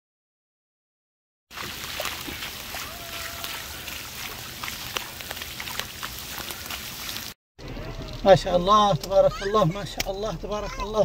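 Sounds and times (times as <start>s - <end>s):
heavy rain falling: 1.5s - 7.4s
floodwater running: 1.5s - 10.4s.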